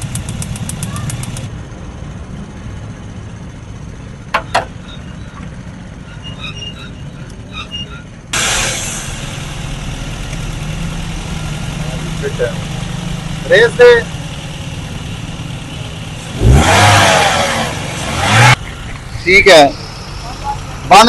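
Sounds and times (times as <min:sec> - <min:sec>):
car engine running: 0:00.0 - 0:01.5, 0:08.3 - 0:21.0
sharp clicks: 0:00.0 - 0:01.5.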